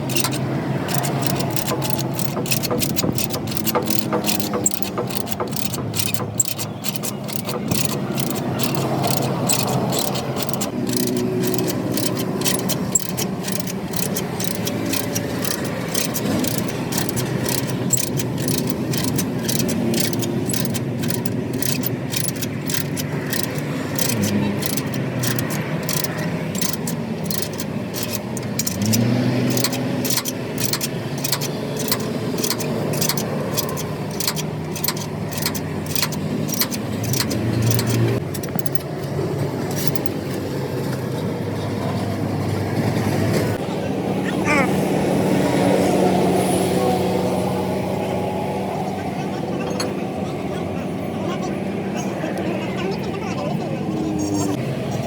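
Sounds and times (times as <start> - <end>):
metallic clicks of repair work: 0.0 - 41.0
vehicle engines running and revving: 0.0 - 55.0.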